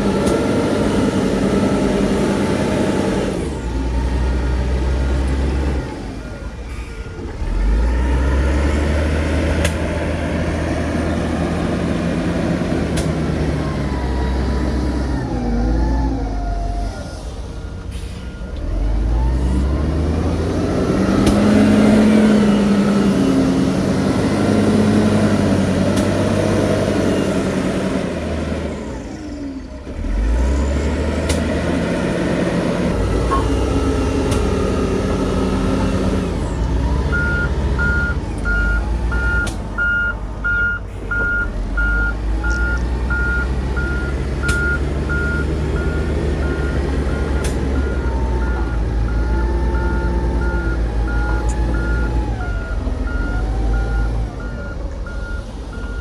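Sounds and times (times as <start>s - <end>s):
diesel construction machinery working: 0.0s - 56.0s
reversing alarm beeping: 36.9s - 56.0s.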